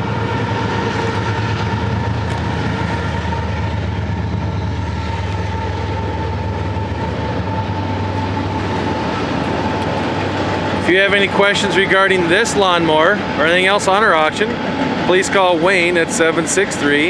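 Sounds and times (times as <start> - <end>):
high whine: 0.0 - 17.0
tractor engine running: 0.0 - 17.0.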